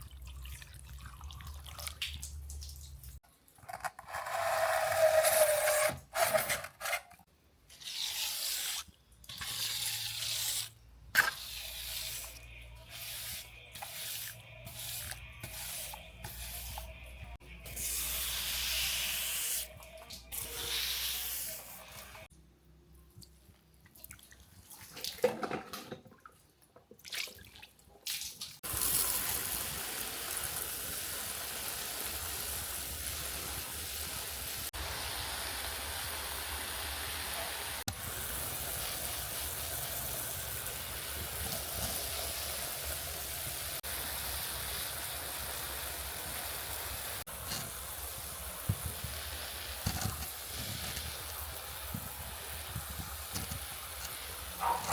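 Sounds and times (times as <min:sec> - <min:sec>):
water dripping: 0:00.0 - 0:03.2
water spraying: 0:37.9 - 0:54.9.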